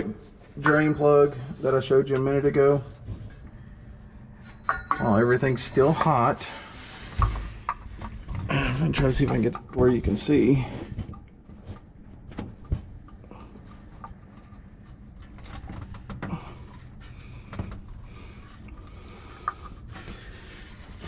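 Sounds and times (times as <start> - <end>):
steady low hum: 0.0 - 21.0
handling knocks and clicks: 7.2 - 18.1.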